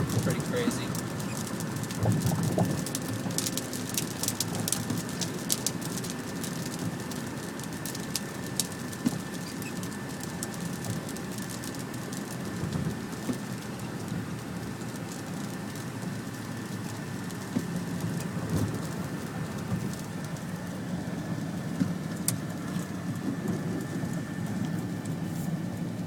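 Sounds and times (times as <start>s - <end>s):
steady low rumble: 0.0s - 6.0s, 11.8s - 26.0s
rain pattering on a car: 0.0s - 26.0s.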